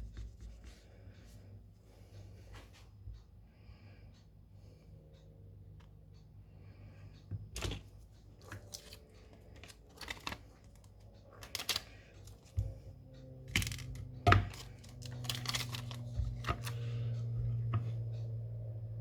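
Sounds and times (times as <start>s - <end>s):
low steady hum: 0.0s - 19.0s
small tools clicking and knocking: 7.6s - 12.8s, 13.4s - 16.9s.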